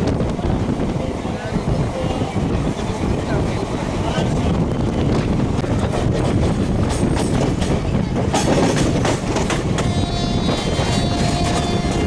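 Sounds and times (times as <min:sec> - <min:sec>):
train rumble: 0:00.0 - 0:12.0
train wheels clattering over joints: 0:04.2 - 0:12.0.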